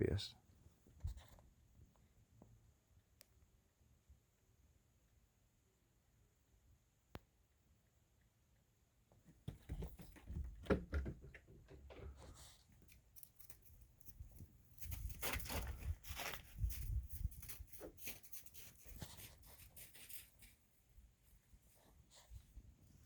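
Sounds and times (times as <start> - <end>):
wind buffeting microphone: 14.9 - 17.7.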